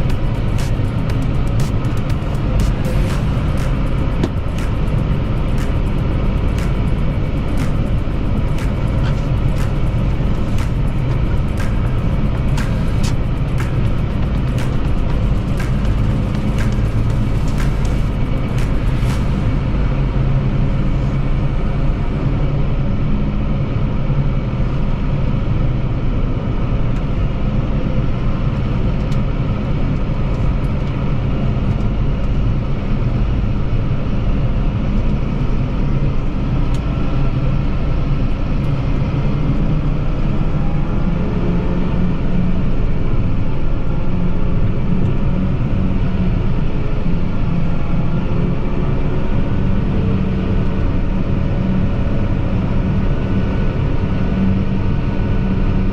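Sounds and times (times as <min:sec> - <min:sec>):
tractor engine running: 0:00.0 - 0:23.8.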